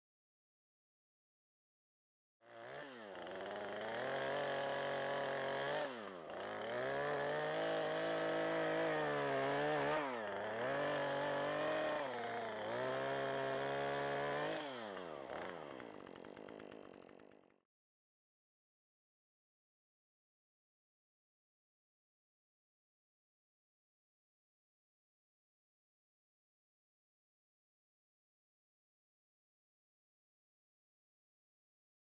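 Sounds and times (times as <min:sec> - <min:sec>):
chainsaw cutting wood: 0:02.4 - 0:17.7.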